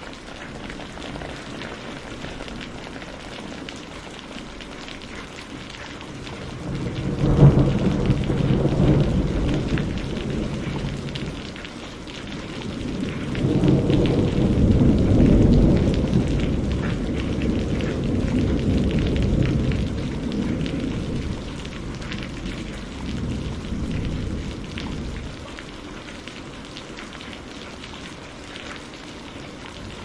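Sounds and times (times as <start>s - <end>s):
steady rain falling: 0.0s - 30.0s
thunder rumbling: 6.0s - 25.8s.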